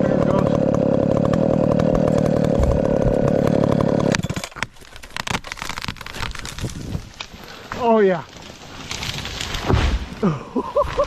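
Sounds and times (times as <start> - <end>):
chainsaw running at high speed: 0.0 - 4.6.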